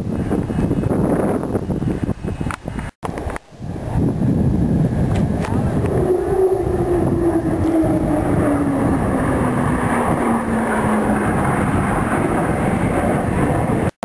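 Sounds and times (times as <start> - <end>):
jet aircraft roaring past: 3.1 - 14.0.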